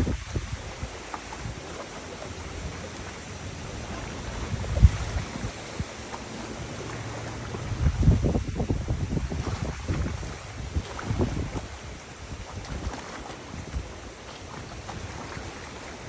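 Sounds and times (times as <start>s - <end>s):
steady rushing hiss: 0.0s - 9.8s
wind buffeting microphone: 0.0s - 16.0s.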